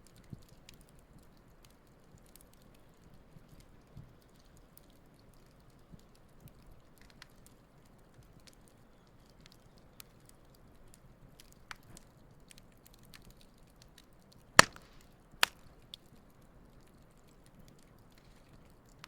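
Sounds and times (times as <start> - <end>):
campfire crackling: 0.0 - 19.0
loud pops from burning wood: 0.1 - 19.0.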